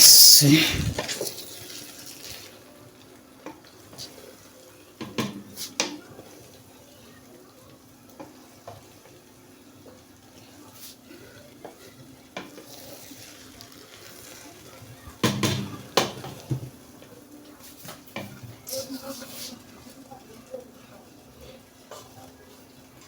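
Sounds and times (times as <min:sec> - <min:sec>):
food sizzling: 0:00.0 - 0:03.0, 0:12.4 - 0:16.5.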